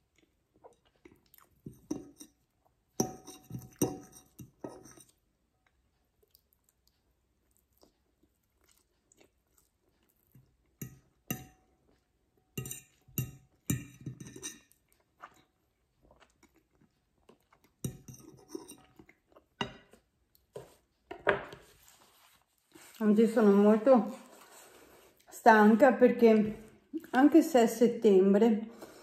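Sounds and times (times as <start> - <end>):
person chewing: 0.0 - 1.8, 5.6 - 10.8, 14.7 - 20.8.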